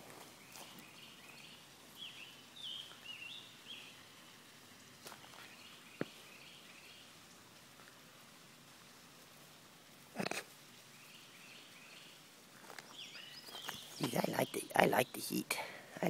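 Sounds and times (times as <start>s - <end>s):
small bird chirping: 0.4s - 4.2s, 10.2s - 15.4s.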